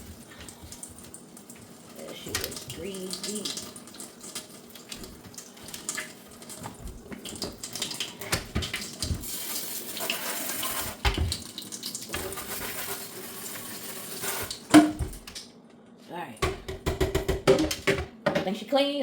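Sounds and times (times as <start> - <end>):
tap running into sink: 4.3 - 12.8.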